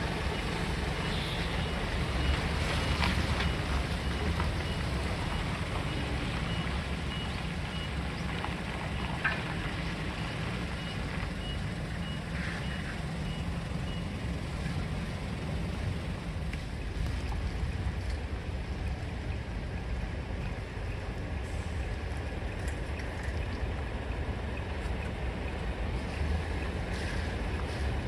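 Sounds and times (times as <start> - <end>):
truck reversing alarm beeping: 0.0 - 16.4
truck engine rumble: 0.0 - 28.0.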